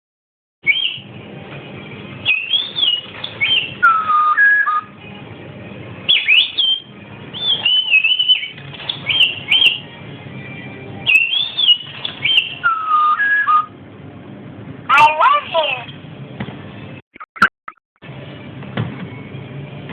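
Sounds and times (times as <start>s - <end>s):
talking bird whistling a tune: 0.6s - 1.1s, 2.2s - 4.9s, 6.1s - 9.9s, 11.0s - 13.7s.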